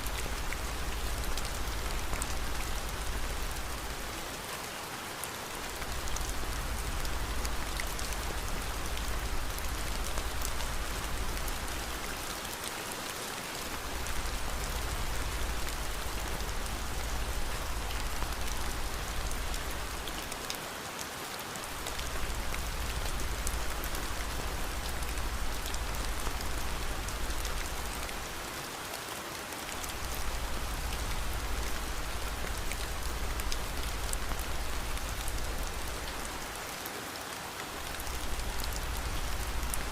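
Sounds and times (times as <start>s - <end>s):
raindrop ticks: 0.0s - 4.1s, 29.7s - 36.6s, 37.8s - 39.9s
steady rain hiss: 0.0s - 39.9s.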